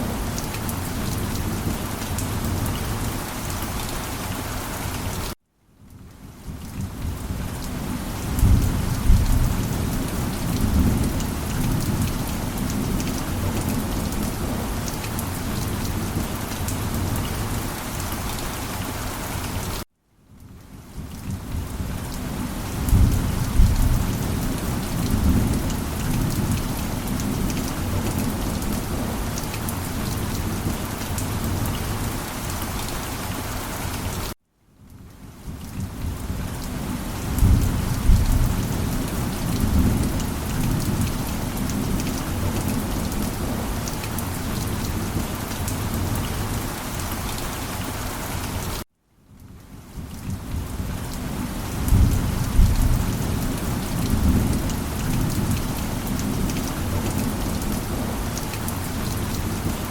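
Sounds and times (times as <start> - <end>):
heavy rain: 0.0 - 59.9
thunder rumbling: 22.8 - 29.2, 37.3 - 43.6, 51.8 - 58.1.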